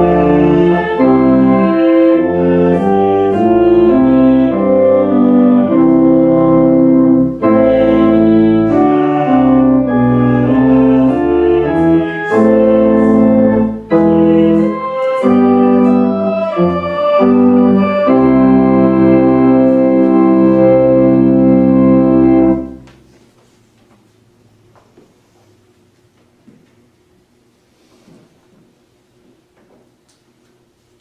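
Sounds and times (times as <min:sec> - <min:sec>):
organ chords: 0:00.0 - 0:23.1.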